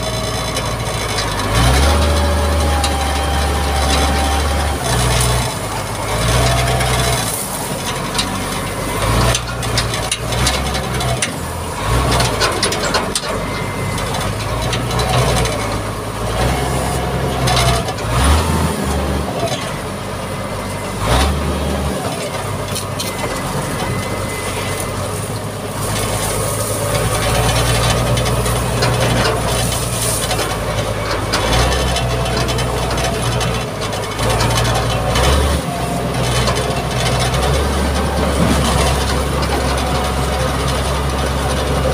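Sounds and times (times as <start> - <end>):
diesel engine running under load: 0.0 - 41.9
knocks and clatter: 38.2 - 39.8.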